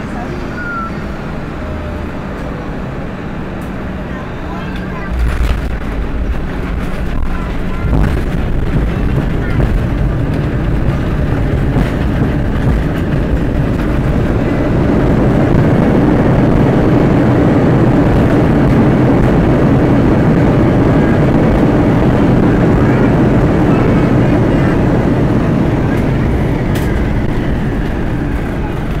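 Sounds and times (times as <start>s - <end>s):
airplane cabin engine and airflow noise: 0.0s - 29.0s.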